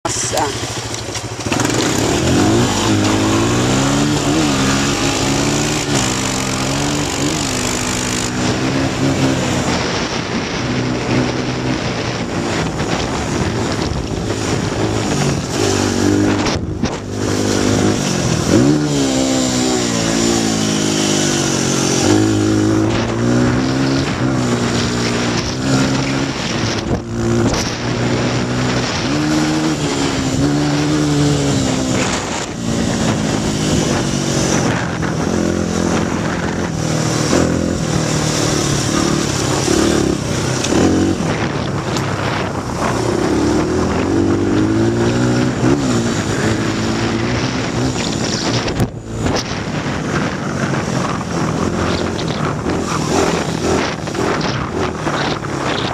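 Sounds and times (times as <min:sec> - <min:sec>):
dirt bike engine revving: 0:00.0 - 0:55.9
wind rushing over microphone: 0:00.0 - 0:55.9.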